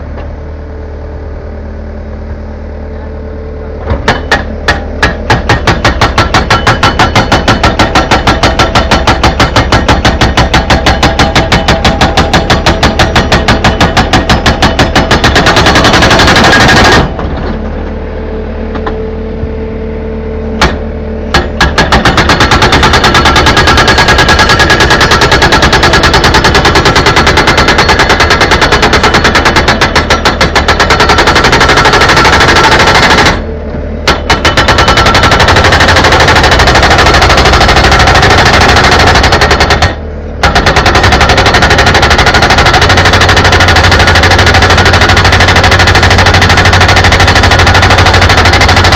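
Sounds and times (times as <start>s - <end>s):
low steady hum: 0.0s - 26.0s
jackhammer breaking masonry: 3.9s - 17.4s, 20.6s - 33.5s, 34.1s - 48.9s.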